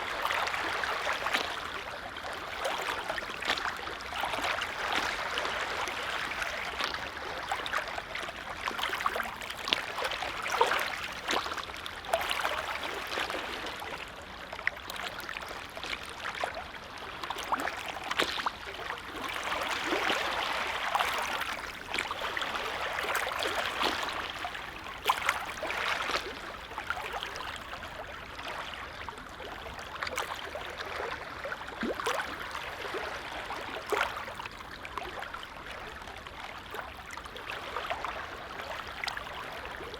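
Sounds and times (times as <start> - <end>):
lake waves lapping: 0.0 - 14.0, 14.6 - 39.9.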